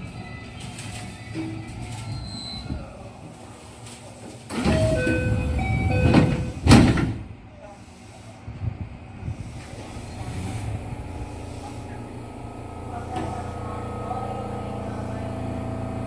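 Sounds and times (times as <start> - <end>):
train doors sliding: 0.0 - 13.6
doors banging shut: 4.5 - 7.3.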